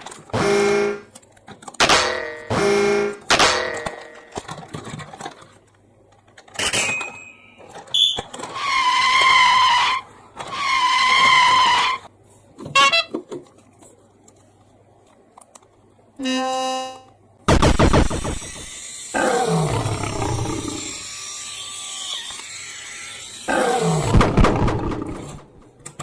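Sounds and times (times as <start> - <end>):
short pitched electronic toots: 16.2 - 17.1.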